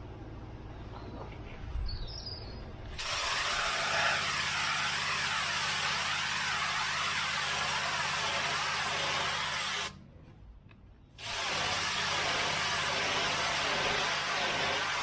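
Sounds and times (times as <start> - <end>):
pressure washer motor running: 2.9 - 10.0, 11.2 - 15.0
water jet hissing on tarmac: 2.9 - 10.0, 11.2 - 15.0.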